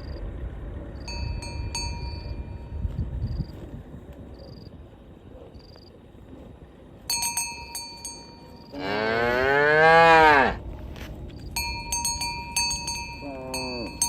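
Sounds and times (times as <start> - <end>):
metal cow bell clanking: 1.1 - 2.8, 7.1 - 8.8, 11.6 - 14.0
cow mooing: 8.7 - 10.6, 13.1 - 14.0.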